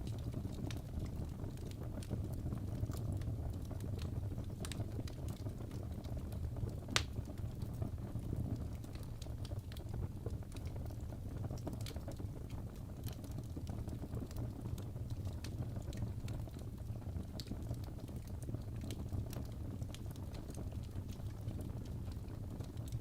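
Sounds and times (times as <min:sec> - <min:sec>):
fire crackling and popping: 0:00.0 - 0:23.0
low rumble of flame: 0:00.0 - 0:23.0.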